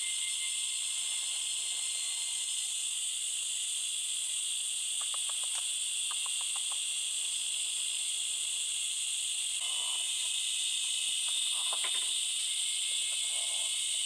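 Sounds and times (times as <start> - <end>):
forest insects buzzing: 0.0 - 14.0
faint ticks: 5.0 - 6.8.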